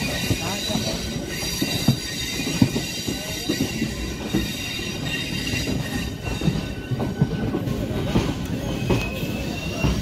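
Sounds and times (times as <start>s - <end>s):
steady high squeal: 0.0s - 7.6s
train wheels rumbling on rails: 0.0s - 10.0s.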